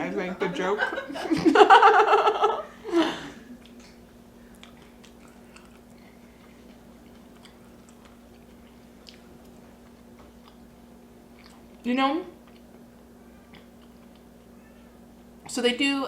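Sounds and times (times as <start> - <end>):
person chewing food: 3.4 - 11.8, 12.4 - 14.5.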